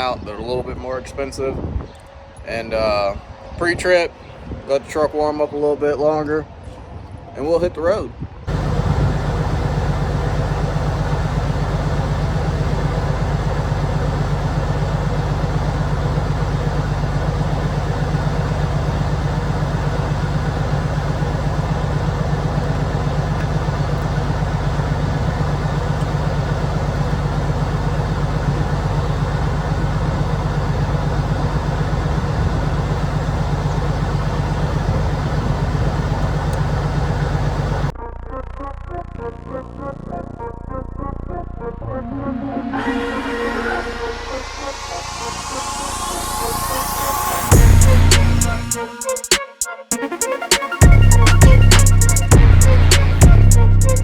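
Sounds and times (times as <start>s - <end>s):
diesel truck engine idling: 8.5s - 37.9s, 42.6s - 49.3s, 50.8s - 54.0s.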